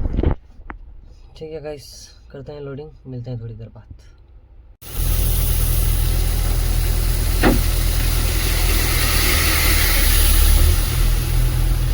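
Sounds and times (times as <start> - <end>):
excavator diesel engine running: 4.8 - 11.9.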